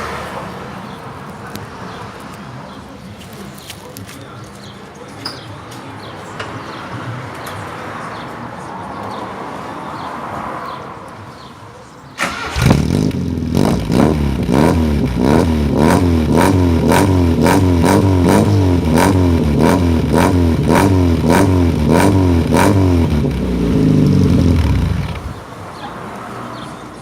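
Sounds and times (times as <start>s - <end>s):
car engine blipping: 12.2s - 25.4s.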